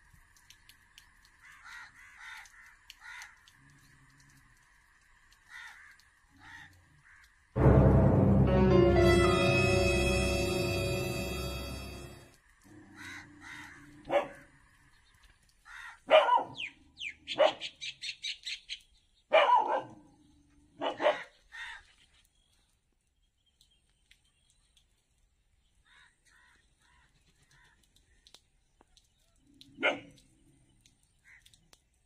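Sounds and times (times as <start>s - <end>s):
dog barking: 14.1s - 14.5s, 16.1s - 16.6s, 17.4s - 17.7s, 19.3s - 20.0s, 20.8s - 21.3s, 29.8s - 30.2s.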